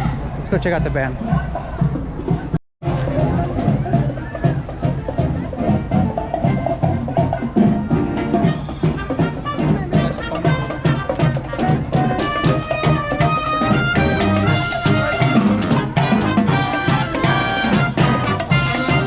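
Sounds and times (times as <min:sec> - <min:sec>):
live band playing: 0:02.8 - 0:19.0.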